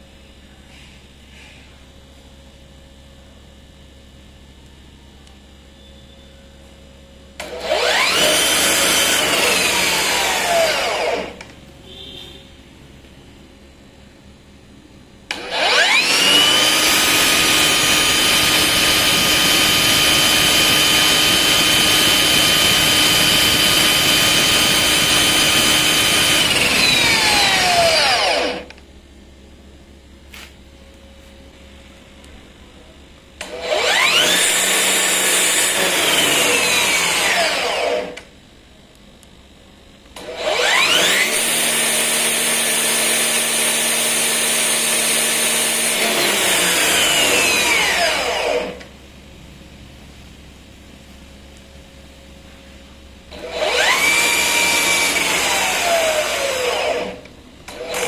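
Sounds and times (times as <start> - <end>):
grass trimmer motor whine: 7.4 - 12.2, 15.3 - 28.8, 33.4 - 38.2, 40.2 - 48.9, 53.3 - 58.0.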